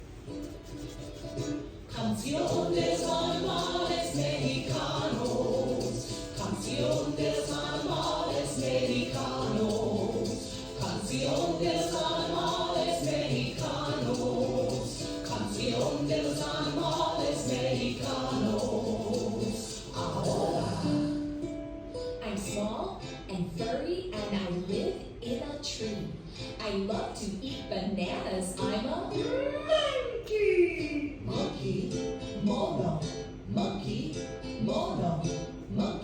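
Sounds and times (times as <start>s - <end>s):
musical accompaniment: 0.1s - 22.2s
group of voices singing: 1.9s - 21.3s.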